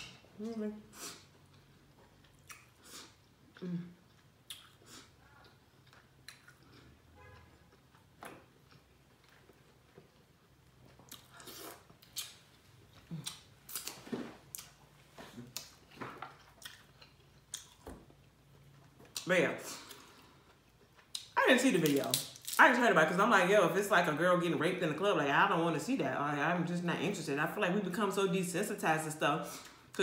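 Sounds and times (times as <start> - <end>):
person chewing and lip-smacking: 1.3 - 14.8, 15.4 - 21.4.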